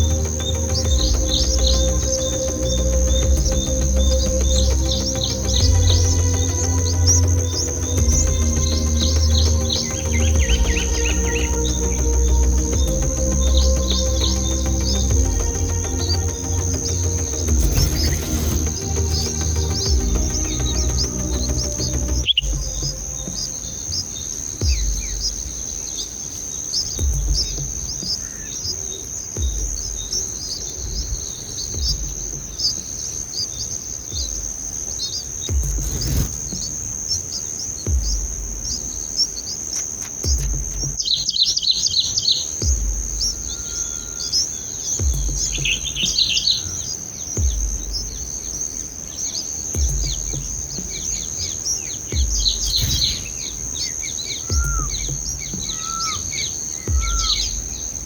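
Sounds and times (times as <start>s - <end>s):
low pulse: 0.0s - 25.6s, 52.1s - 58.0s
birds chirping: 0.0s - 58.0s
high-pitched insect drone: 0.0s - 58.0s.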